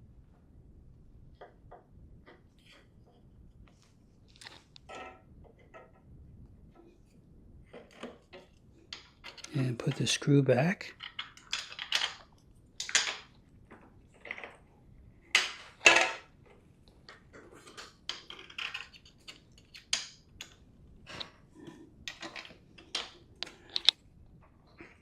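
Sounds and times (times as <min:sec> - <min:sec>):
clicks and taps of parts: 0:22.1 - 0:24.0.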